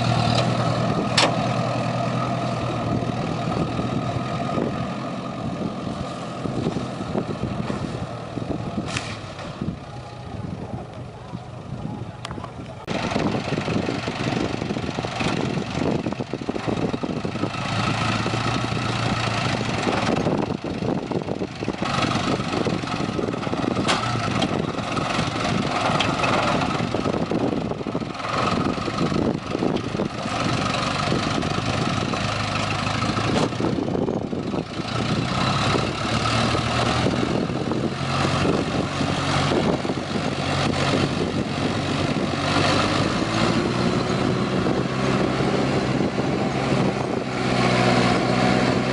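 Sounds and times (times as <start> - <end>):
truck engine running: 0.0 - 48.9.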